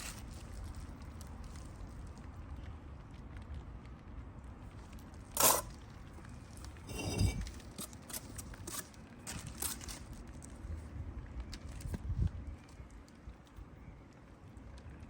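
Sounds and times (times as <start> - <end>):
brick and trowel clinking on masonry: 5.4 - 5.7, 6.8 - 8.9.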